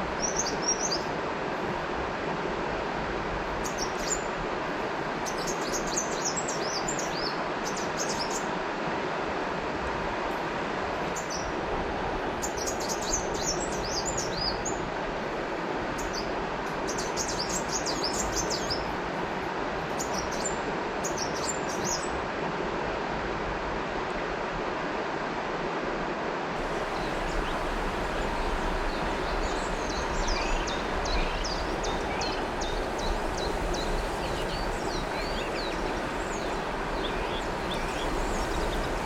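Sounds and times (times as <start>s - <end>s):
river water flowing: 0.0s - 39.0s
small birds chirping: 26.6s - 39.0s.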